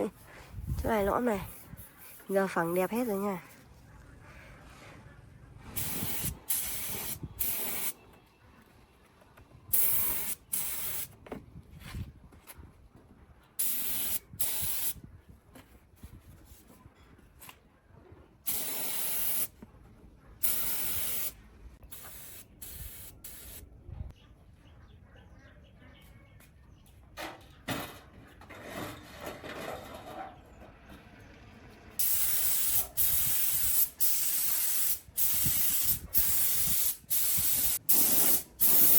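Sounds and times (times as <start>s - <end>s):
hissing spray bursts: 5.8s - 8.0s, 9.7s - 11.1s, 13.6s - 15.0s, 18.5s - 19.5s, 20.4s - 23.6s, 32.0s - 38.9s.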